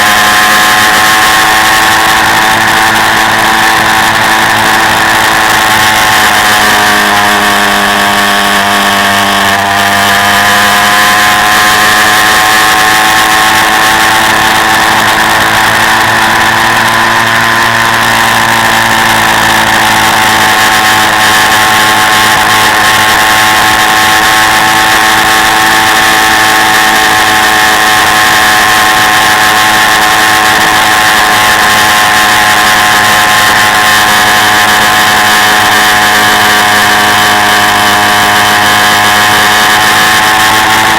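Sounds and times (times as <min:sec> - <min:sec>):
quad bike engine running: 0:00.0 - 0:40.9.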